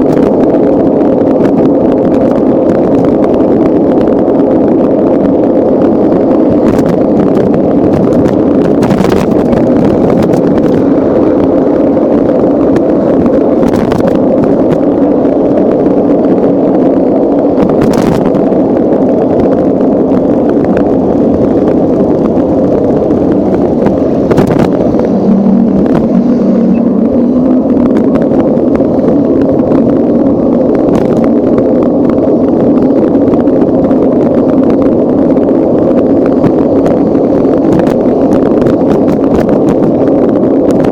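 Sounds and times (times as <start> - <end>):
wind and road noise rumble: 0.0 - 40.9.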